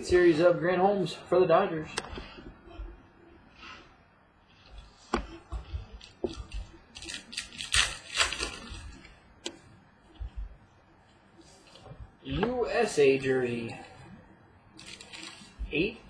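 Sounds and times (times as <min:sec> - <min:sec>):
cards rustling and crinkling: 0:04.5 - 0:09.6, 0:11.0 - 0:12.6, 0:14.8 - 0:16.0.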